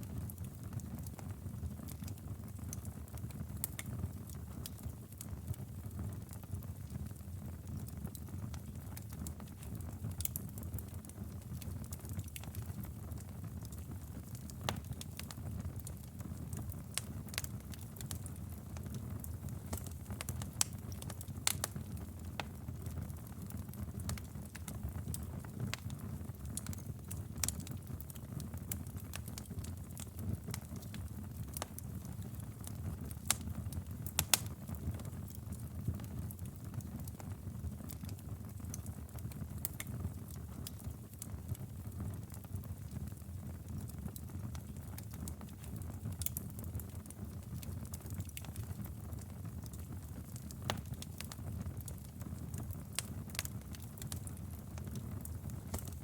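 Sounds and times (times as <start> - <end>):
flames rumbling: 16.5 - 56.0
burning wood popping and snapping: 19.7 - 21.8, 33.2 - 35.4, 49.7 - 52.0, 52.9 - 56.0.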